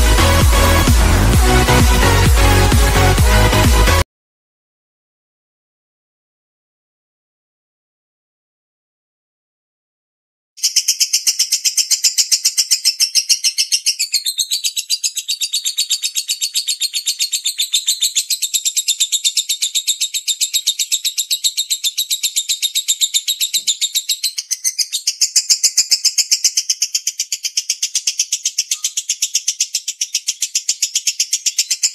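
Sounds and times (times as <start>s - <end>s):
lovebird chattering trill: 10.6s - 31.9s.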